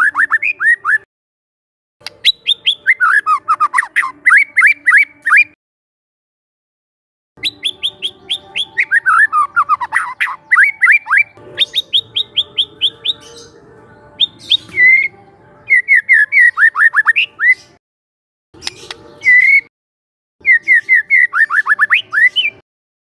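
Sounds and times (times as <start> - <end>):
bird singing whistled notes: 0.0 - 1.0, 2.1 - 5.6, 7.4 - 17.8, 18.6 - 19.7, 20.4 - 22.6.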